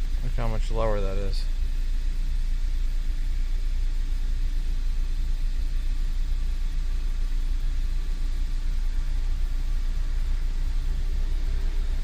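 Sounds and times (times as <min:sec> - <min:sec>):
car cabin road rumble: 0:04.9 - 0:12.0.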